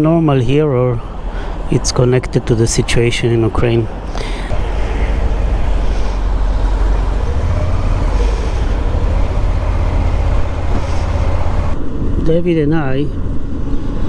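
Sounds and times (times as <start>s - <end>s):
road and wind noise: 0.0s - 14.0s
motorcycle engine rumbling: 4.0s - 11.8s.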